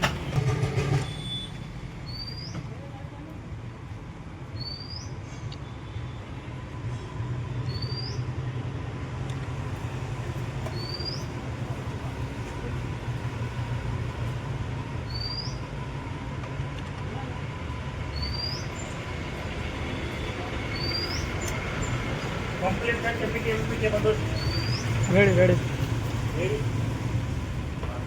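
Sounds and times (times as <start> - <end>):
low engine hum: 8.4 - 28.0.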